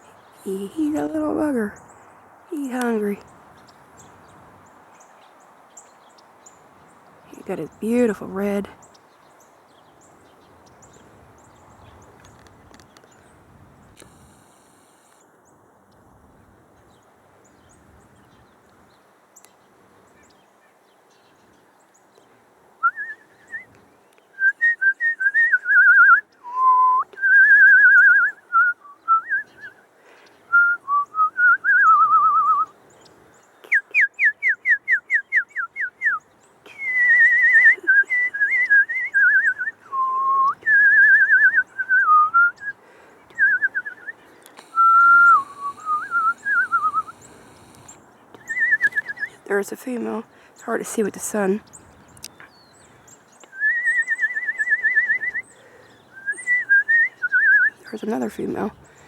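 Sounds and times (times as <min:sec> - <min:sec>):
woman whistling: 0:22.8 - 0:23.7, 0:24.4 - 0:29.8, 0:30.5 - 0:32.7, 0:33.7 - 0:42.8, 0:43.4 - 0:47.2, 0:48.4 - 0:49.4, 0:53.5 - 0:55.5, 0:56.1 - 0:57.8.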